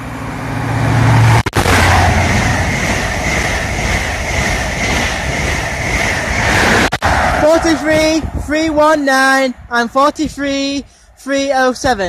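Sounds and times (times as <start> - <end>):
diesel engine hum: 0.0 - 7.4
train coaches rushing past: 0.0 - 12.0.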